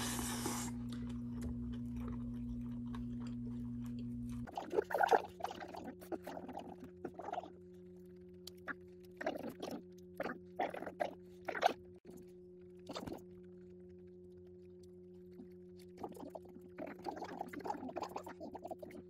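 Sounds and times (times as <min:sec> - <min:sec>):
steady low hum: 0:00.0 - 0:10.5
person chewing pizza: 0:00.0 - 0:19.0.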